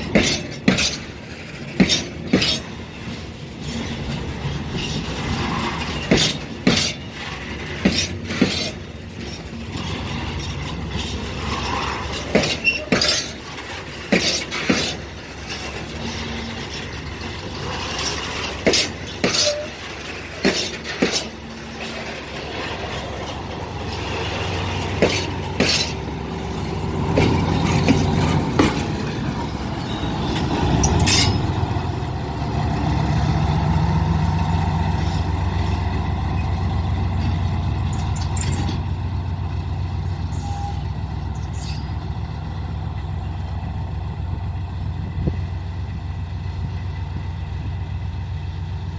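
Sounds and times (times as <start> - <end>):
train wheels clicking over rail joints: 0.0 - 48.9
diesel engine hum: 22.4 - 48.9.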